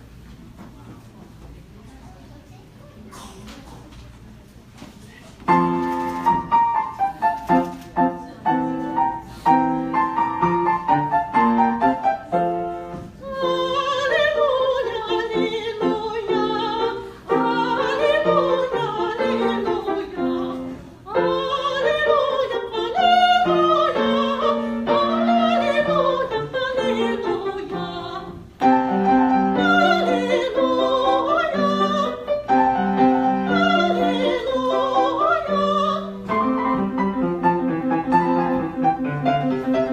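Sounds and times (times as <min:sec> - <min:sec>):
piano accompaniment: 0:05.4 - 0:39.9
person singing with vibrato: 0:13.2 - 0:36.7.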